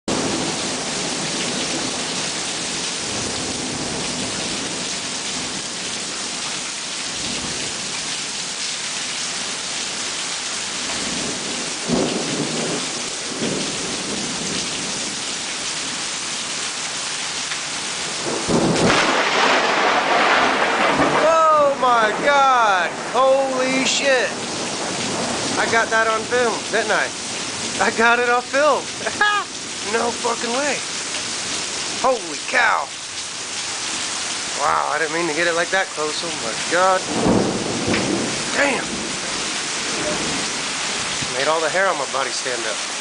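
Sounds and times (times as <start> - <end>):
heavy rain falling: 0.1 - 43.0
thunder crash: 18.2 - 23.2, 37.1 - 40.5.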